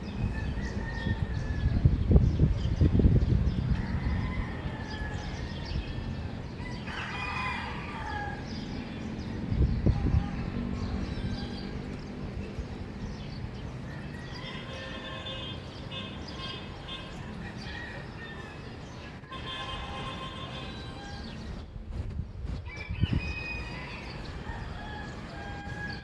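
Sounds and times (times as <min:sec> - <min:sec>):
rooster crowing: 0:00.3 - 0:01.8, 0:03.8 - 0:06.0, 0:06.6 - 0:08.6, 0:13.9 - 0:15.3, 0:22.7 - 0:26.0
small birds chirping: 0:07.6 - 0:21.8.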